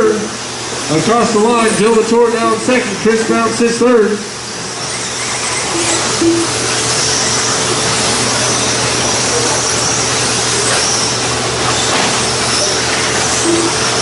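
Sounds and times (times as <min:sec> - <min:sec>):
electric toy trucks whining: 0:04.4 - 0:14.0.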